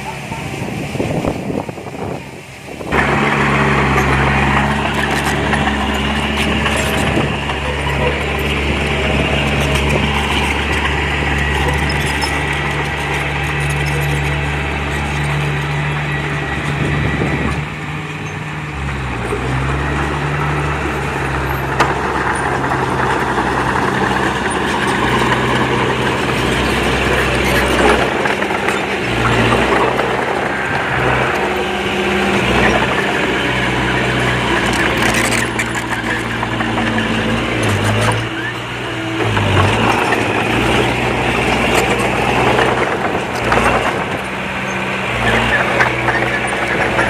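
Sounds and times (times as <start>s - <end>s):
heavy machinery diesel engine: 0.0s - 47.0s
clattering noise: 2.9s - 47.0s.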